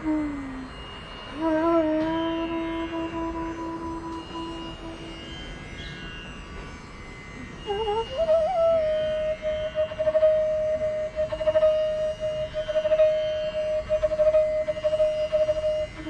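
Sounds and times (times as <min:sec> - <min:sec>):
indian classical instrumental music: 0:00.0 - 0:16.0.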